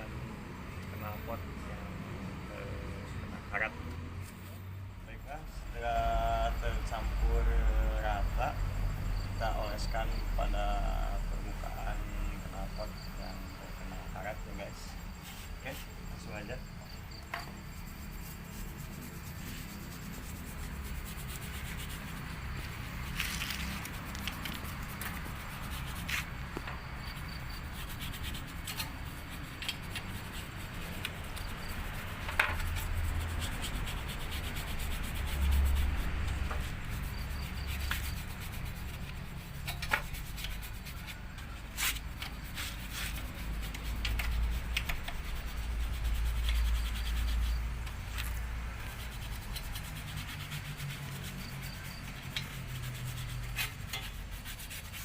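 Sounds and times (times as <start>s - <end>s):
scrubbing metal pipe: 14.7s - 55.0s
sharp clicks and knocks: 17.2s - 17.7s, 32.2s - 32.8s, 39.0s - 40.2s, 43.7s - 45.2s.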